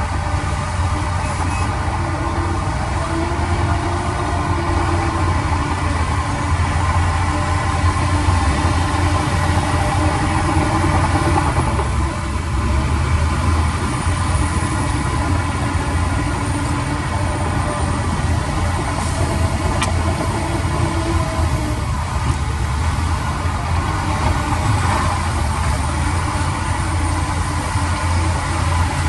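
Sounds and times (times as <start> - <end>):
diesel engine rumbling: 0.0 - 29.0.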